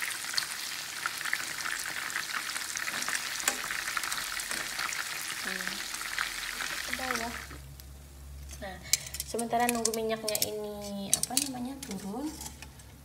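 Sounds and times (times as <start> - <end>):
chicken deep-frying in oil: 0.0 - 7.8.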